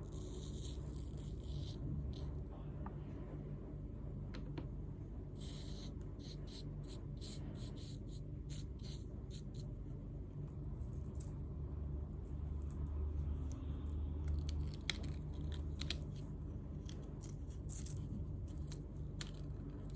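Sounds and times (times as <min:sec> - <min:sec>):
low hum: 0:00.0 - 0:19.9.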